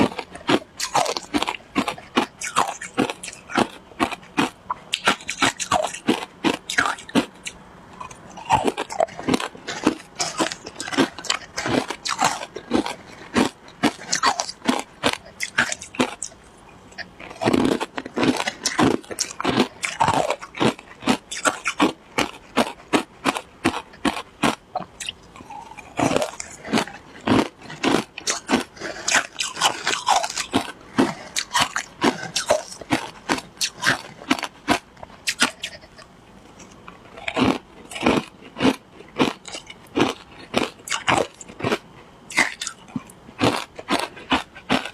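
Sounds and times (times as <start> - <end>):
shaved ice crunching: 25.4 - 35.7.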